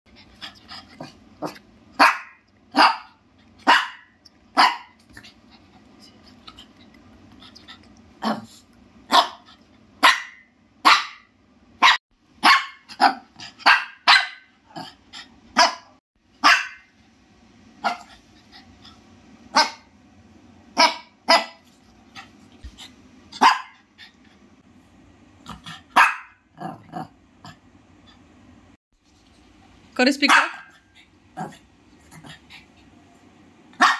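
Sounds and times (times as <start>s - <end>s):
small dog barking: 1.4s - 5.0s, 9.1s - 14.5s, 15.6s - 16.9s, 17.8s - 18.1s, 19.5s - 19.9s, 20.8s - 21.6s, 23.4s - 23.8s, 25.8s - 27.1s, 30.3s - 30.8s.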